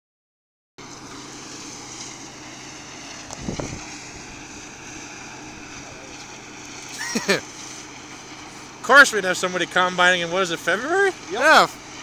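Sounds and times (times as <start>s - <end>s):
farm machinery engine running: 0.8s - 12.0s
wind on microphone: 3.3s - 6.1s.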